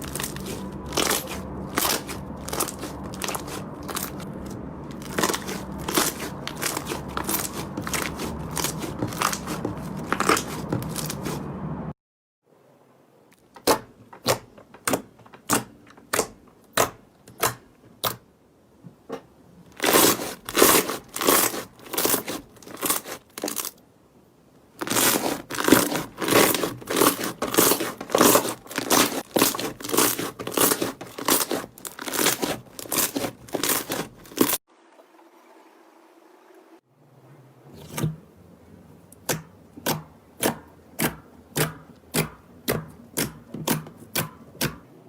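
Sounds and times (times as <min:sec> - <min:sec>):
slime crackling and squelching: 0:00.0 - 0:11.5, 0:19.7 - 0:23.8, 0:24.7 - 0:34.6.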